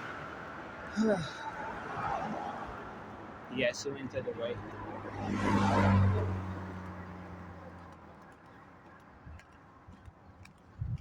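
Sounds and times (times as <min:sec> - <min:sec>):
vehicle passing by: 0:01.7 - 0:08.1.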